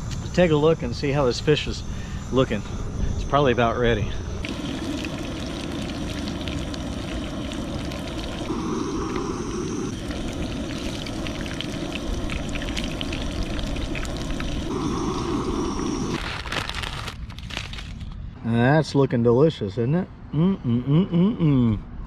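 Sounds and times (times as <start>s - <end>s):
fish fillets sizzling in oil: 4.4s - 16.8s.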